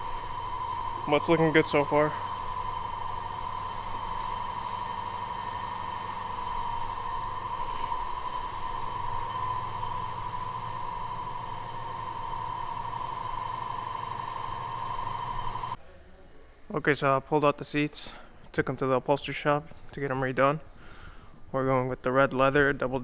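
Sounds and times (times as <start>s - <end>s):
car driving drone: 0.0s - 15.8s
steady high whine: 0.0s - 15.8s.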